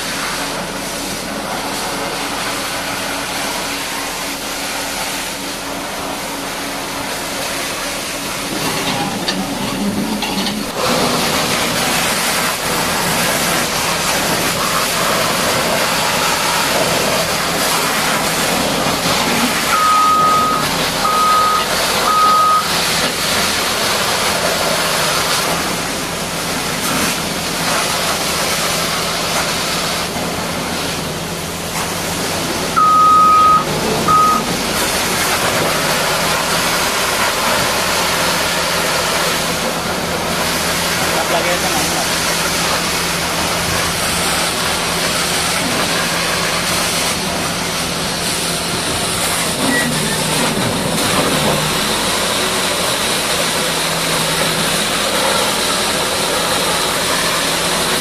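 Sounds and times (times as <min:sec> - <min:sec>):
heavy machinery running: 0:00.0 - 0:58.0
high-pressure water jet hissing: 0:00.0 - 0:58.0
electronic beeps: 0:19.7 - 0:22.7, 0:32.8 - 0:34.5.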